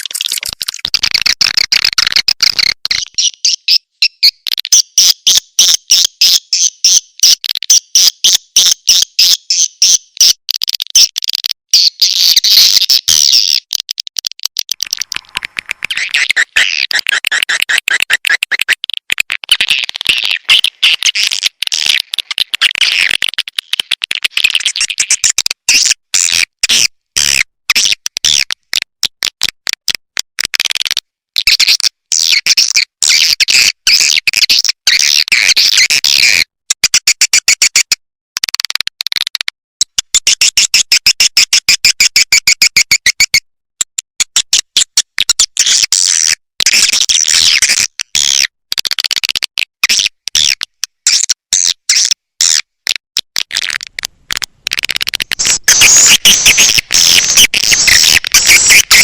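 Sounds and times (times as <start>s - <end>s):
swiftlet twittering chirps: 55.4s - 59.0s.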